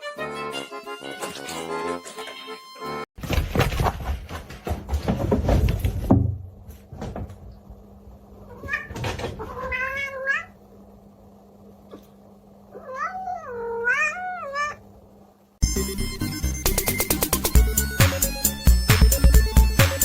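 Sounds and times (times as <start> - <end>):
knocks and clatter: 3.2 - 7.6, 8.6 - 9.6
cat meowing: 8.5 - 10.6, 12.7 - 14.8.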